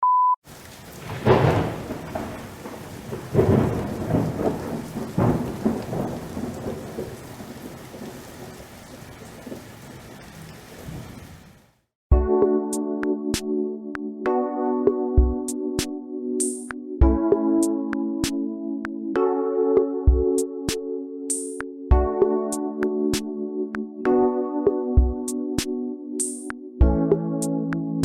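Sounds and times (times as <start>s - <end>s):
steady rain: 0.4s - 11.8s
thunder rolling: 0.5s - 11.6s.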